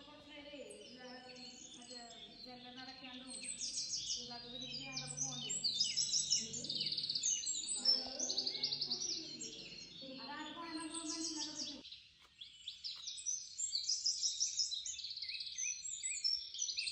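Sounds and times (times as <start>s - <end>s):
small birds chirping: 0.0s - 16.9s
lower voices: 0.7s - 11.8s.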